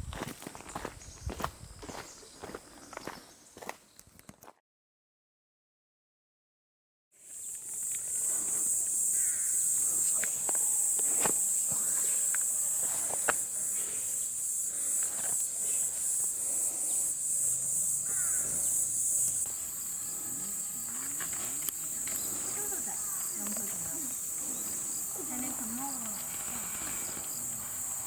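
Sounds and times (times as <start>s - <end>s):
insects shrilling: 7.2s - 28.0s.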